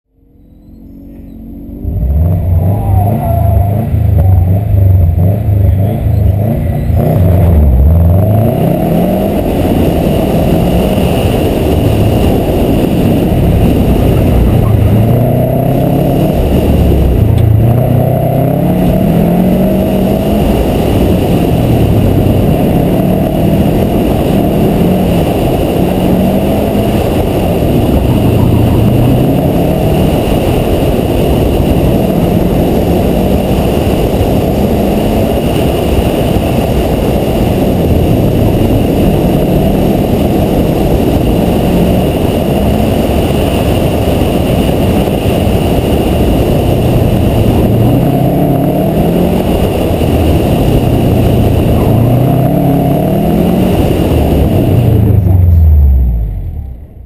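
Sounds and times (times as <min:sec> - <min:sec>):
steady high tone: 0:00.1 - 0:07.7
car engine revving: 0:00.1 - 0:57.0.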